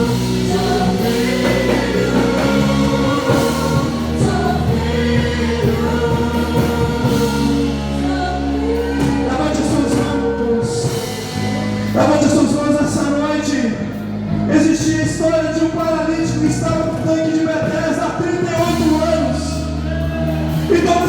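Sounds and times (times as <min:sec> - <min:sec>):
group singing gospel song: 0:00.0 - 0:13.2
sustained instrumental backing: 0:00.0 - 0:21.0.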